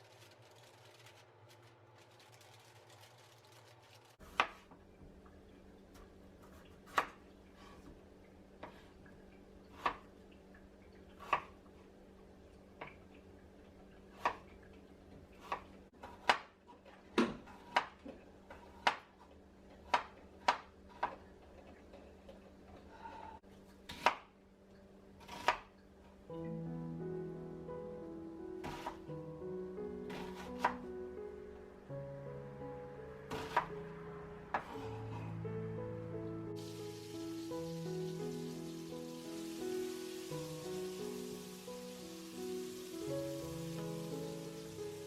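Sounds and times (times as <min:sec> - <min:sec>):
knife chopping on cutting board: 0:28.6 - 0:29.0, 0:30.1 - 0:30.8, 0:33.3 - 0:33.7.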